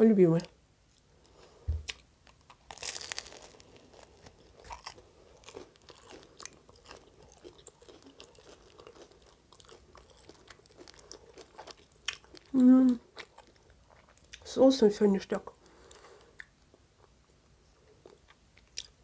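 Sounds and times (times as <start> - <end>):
chewing with crust crackles: 0.4 - 14.5, 15.6 - 19.0
crunchy bite into bread crust: 1.8 - 12.5.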